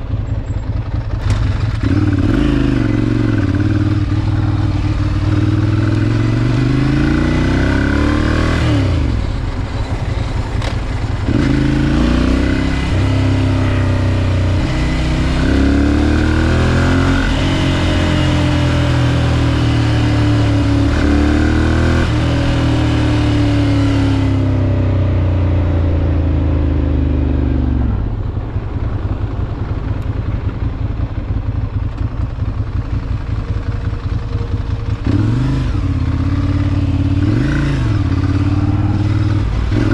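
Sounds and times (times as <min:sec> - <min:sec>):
motorcycle engine lumpy idle: 0:00.0 - 0:02.1, 0:28.4 - 0:35.1.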